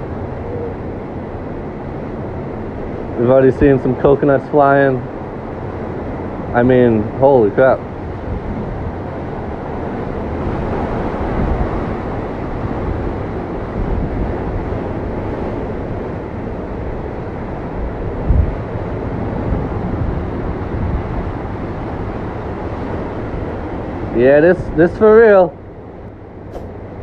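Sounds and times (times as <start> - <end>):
wind buffeting microphone: 5.1 - 16.1.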